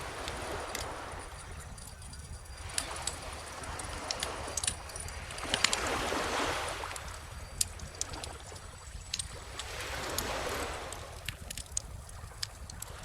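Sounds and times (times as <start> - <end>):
calm ocean waves washing in: 0.0 - 1.6, 2.6 - 13.0
wood fire crackling and popping: 3.7 - 5.8, 10.9 - 13.0.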